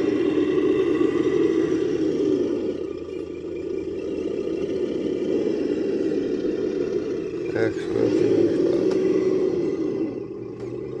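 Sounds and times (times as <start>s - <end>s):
rc truck motor whine: 0.0s - 11.0s.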